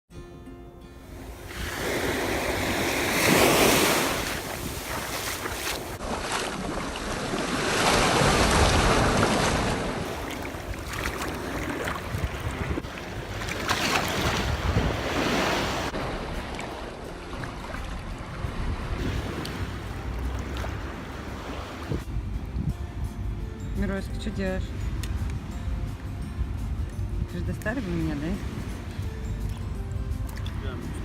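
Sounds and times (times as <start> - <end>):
wind buffeting microphone: 1.2 - 6.1, 7.1 - 16.4, 20.7 - 23.4
waves washing onto beach: 1.2 - 22.0.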